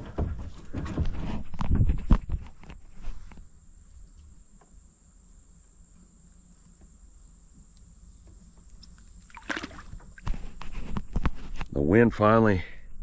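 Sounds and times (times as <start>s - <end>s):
water lapping against kayak: 8.3s - 10.9s.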